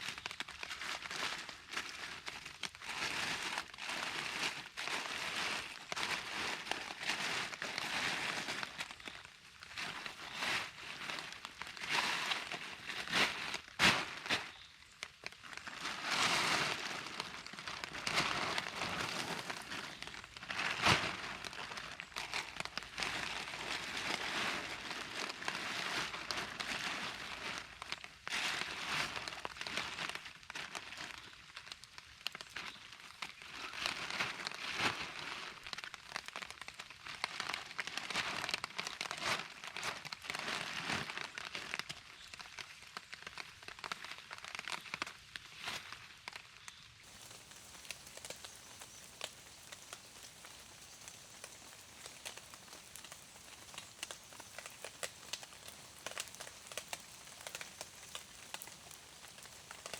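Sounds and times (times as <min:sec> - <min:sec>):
rustling and crackling: 0:15.2 - 0:27.0, 0:47.0 - 0:59.9.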